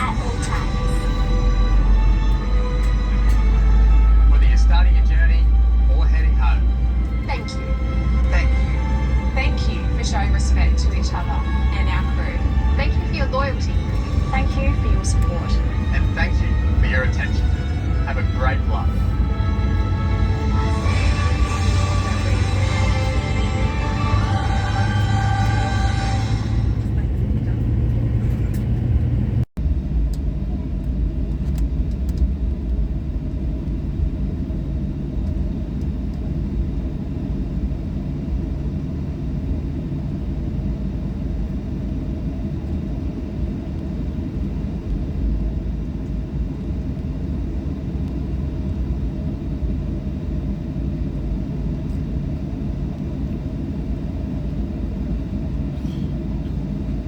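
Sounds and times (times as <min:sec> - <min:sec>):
aircraft engine rumble in cabin: 0:00.0 - 0:57.0.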